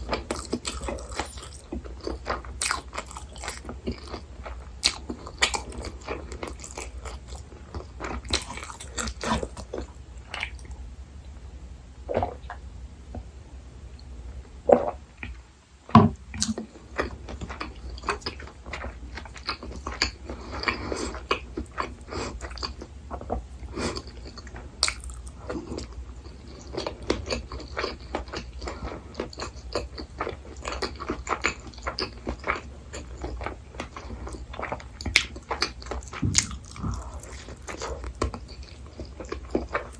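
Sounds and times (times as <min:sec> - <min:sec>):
person chewing food: 0:00.0 - 0:10.8, 0:16.2 - 0:39.9.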